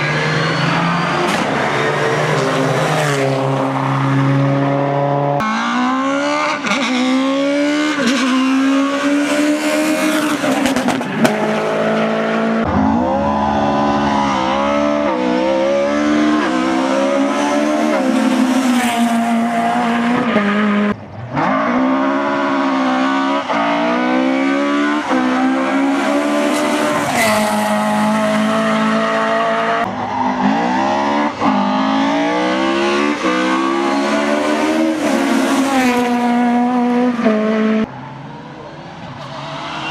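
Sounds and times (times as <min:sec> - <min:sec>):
tyre squeal: 0:00.0 - 0:01.8
rally car engines revving: 0:00.0 - 0:39.9.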